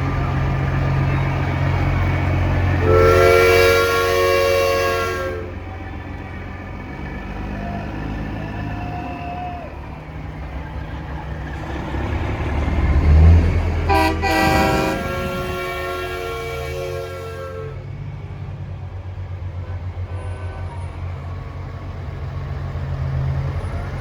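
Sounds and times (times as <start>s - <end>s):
diesel engines rumbling: 0.0s - 24.0s
truck air horns: 2.6s - 5.8s, 13.7s - 18.0s, 19.6s - 21.3s.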